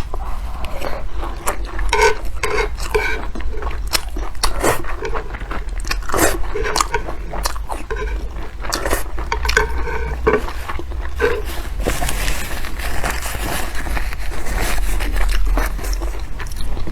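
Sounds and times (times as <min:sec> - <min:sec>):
steady low hum: 0:00.0 - 0:16.9
wet chewing: 0:00.0 - 0:16.9.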